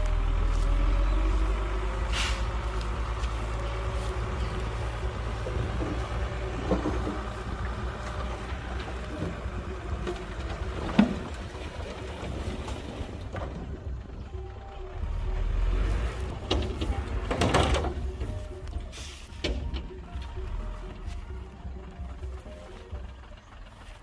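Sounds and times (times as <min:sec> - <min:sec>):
heavy diesel engine rumbling: 0:00.0 - 0:24.0
short hiss: 0:02.1 - 0:02.5.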